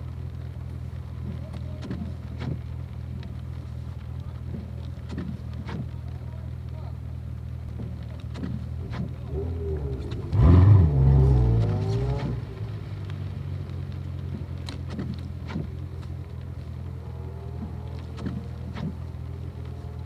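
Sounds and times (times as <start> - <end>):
car engine idling: 0.0 - 20.0
car passing by: 8.9 - 13.1.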